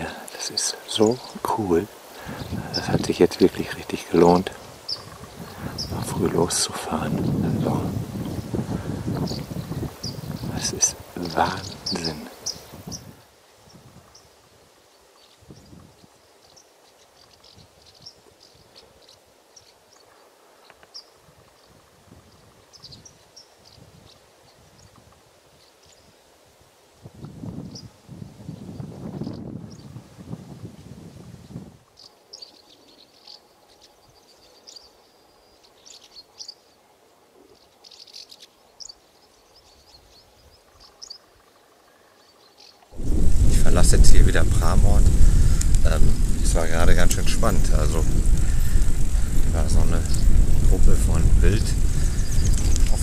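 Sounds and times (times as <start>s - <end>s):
small birds chirping: 0.0s - 26.2s, 27.2s - 30.0s, 31.4s - 53.0s
outdoor background hiss: 0.0s - 53.0s
low rumbling noise: 43.0s - 53.0s.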